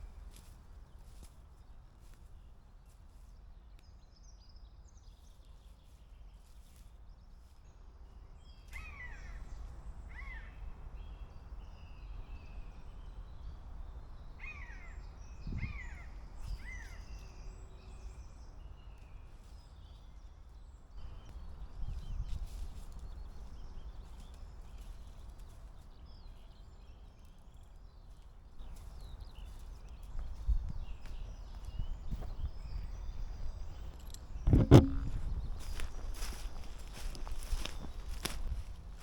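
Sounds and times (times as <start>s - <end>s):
low thump: 34.5s - 35.2s.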